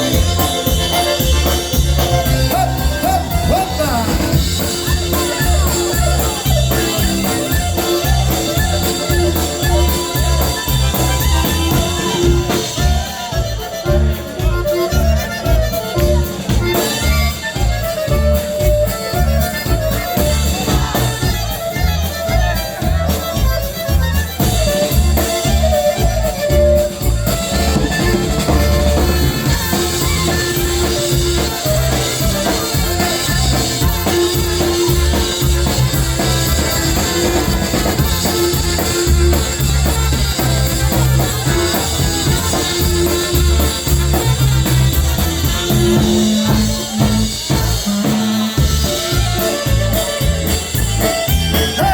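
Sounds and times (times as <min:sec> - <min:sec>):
drum kit beat: 0:00.0 - 0:51.9
polka melody line: 0:00.0 - 0:51.9.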